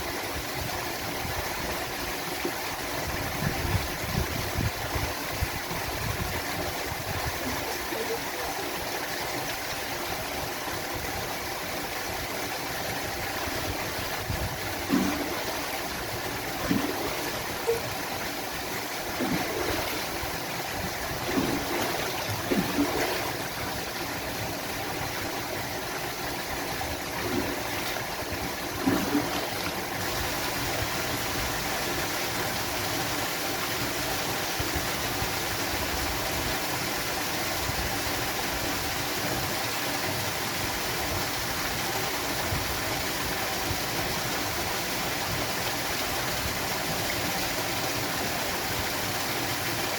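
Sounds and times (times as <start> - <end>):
waterfall rushing: 6.6 - 34.0
splashy plops: 14.8 - 16.0, 16.6 - 18.0, 19.1 - 20.4, 21.0 - 23.5, 28.8 - 29.9.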